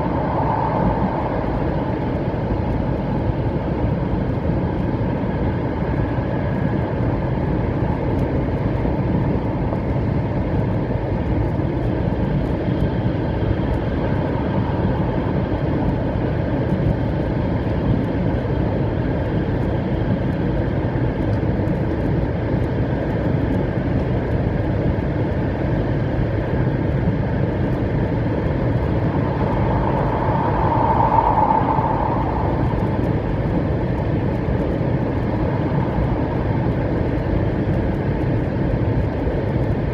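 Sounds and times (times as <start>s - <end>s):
train wheels rumbling on rails: 27.4s - 39.9s.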